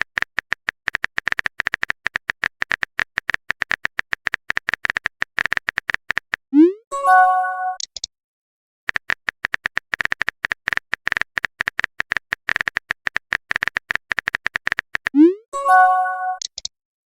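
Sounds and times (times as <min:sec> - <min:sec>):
message chime: 0:06.6 - 0:07.8, 0:15.2 - 0:16.4.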